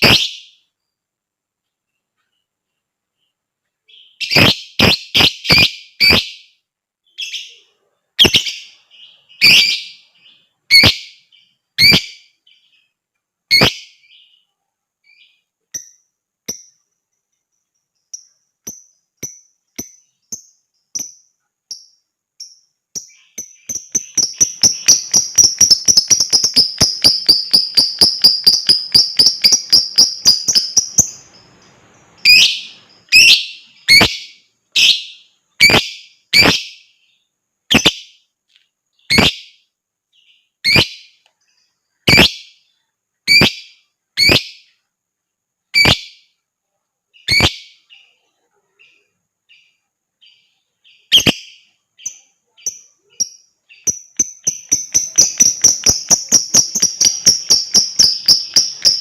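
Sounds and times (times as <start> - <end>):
soft bird chirps: 0.0 - 59.0
fast chattering bird trill: 23.0 - 31.5, 51.1 - 59.0.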